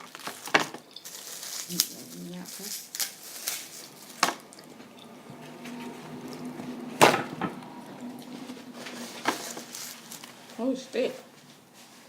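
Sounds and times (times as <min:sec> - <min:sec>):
faint steady hum: 0:00.0 - 0:12.0
knocks and clicks handling food containers: 0:04.2 - 0:08.2.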